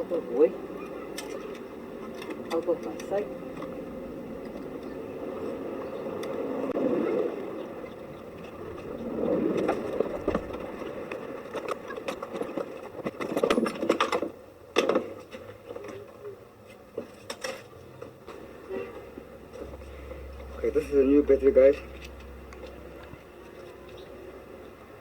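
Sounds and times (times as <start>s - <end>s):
rustling and scraping handling: 14.9s - 20.9s.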